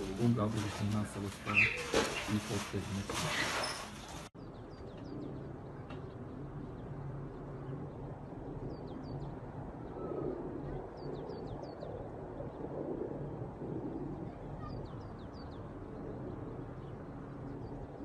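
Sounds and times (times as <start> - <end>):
small birds chirping: 0.0 - 8.0.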